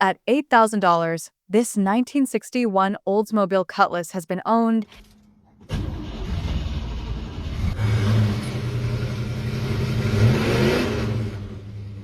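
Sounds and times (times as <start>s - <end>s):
car engine running and revving: 5.7s - 12.0s.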